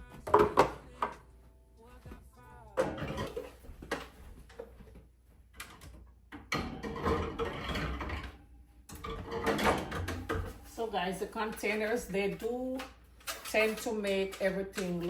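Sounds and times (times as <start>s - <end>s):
scraping and rustling: 9.1s - 15.0s.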